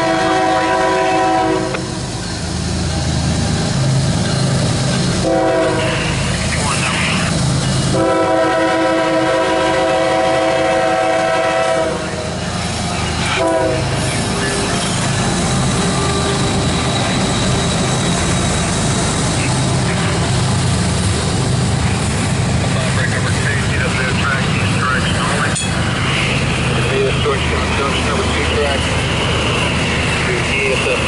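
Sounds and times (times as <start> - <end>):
locomotive air horn: 0.0 - 2.0, 5.2 - 6.2, 7.9 - 12.4, 13.3 - 13.9
train rumbling: 0.0 - 31.0.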